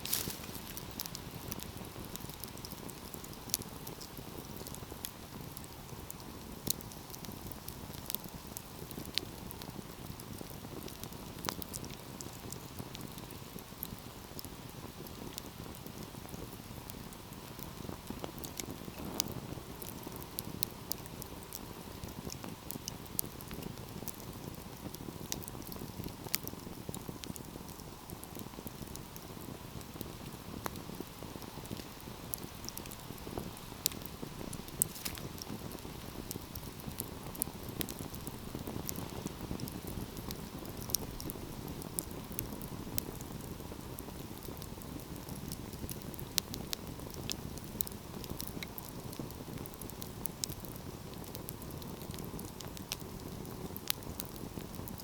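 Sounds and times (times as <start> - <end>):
fire crackling and popping: 0.0 - 55.0
wood fire burning: 0.0 - 55.0.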